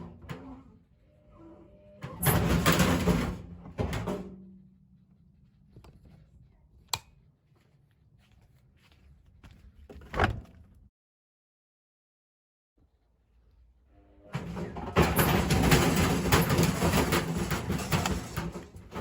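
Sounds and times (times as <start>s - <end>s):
washing machine banging: 2.2s - 4.3s, 14.4s - 19.0s.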